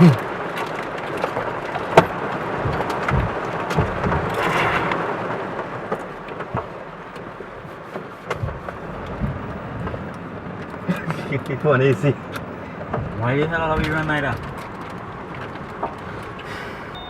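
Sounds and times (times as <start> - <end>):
heavy rain falling: 0.0 - 16.9
short low thumps: 2.0 - 5.0, 8.4 - 10.3, 12.8 - 16.3.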